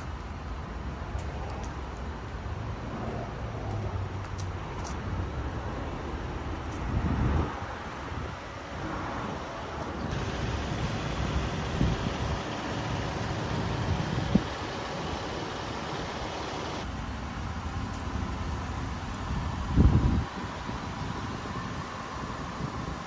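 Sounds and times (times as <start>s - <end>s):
car engine idling: 10.1s - 23.0s.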